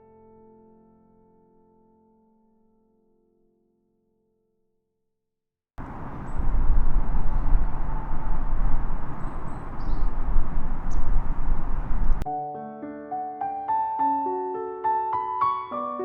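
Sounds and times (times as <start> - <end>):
faint high chirps: 5.8 - 12.2
heavy low rumble: 5.8 - 12.2
rushing noise: 5.8 - 12.2.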